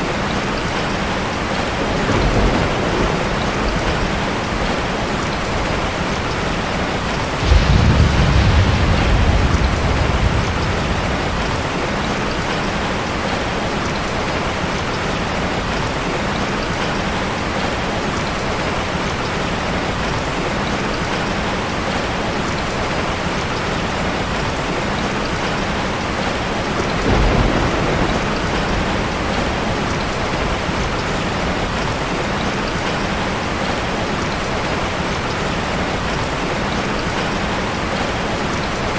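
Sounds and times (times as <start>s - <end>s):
heavy rain: 0.0s - 38.9s
thunder rumbling: 1.1s - 14.5s, 26.0s - 35.2s.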